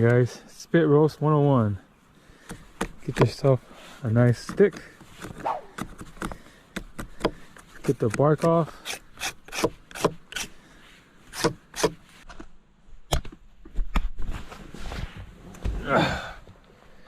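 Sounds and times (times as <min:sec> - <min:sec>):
knife scraping bark off stick: 0:07.0 - 0:10.6, 0:11.3 - 0:12.0.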